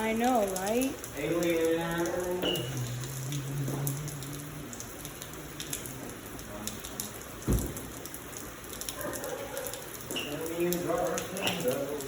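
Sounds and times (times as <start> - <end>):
heavy rain falling: 0.0 - 12.0
dull thump: 7.4 - 7.8.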